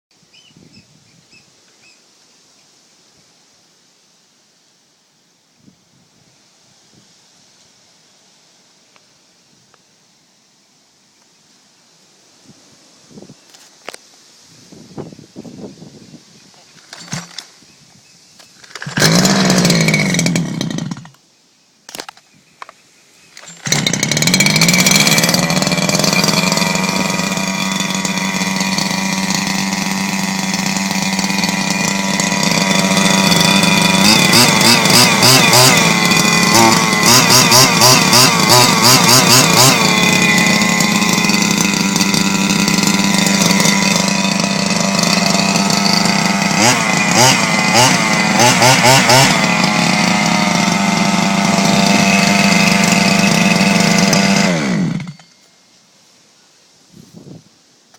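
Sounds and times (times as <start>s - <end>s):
rc car petrol engine running: 23.4s - 54.5s.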